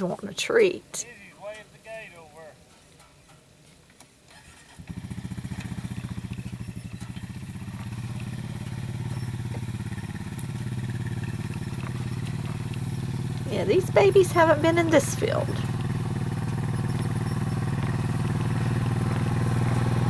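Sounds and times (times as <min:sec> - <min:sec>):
vehicle engine idling: 0:04.3 - 0:20.0.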